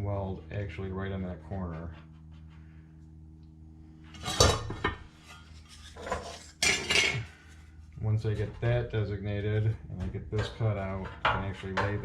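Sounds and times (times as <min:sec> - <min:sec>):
steady low hum: 0:00.0 - 0:12.0
metal tools clanking on workbench: 0:05.9 - 0:07.3.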